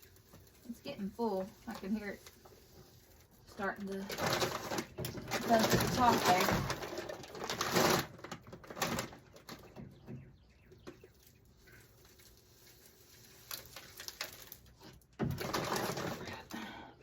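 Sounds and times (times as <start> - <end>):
rustling: 0.0 - 9.9, 11.0 - 16.8
handling noises: 0.0 - 16.8.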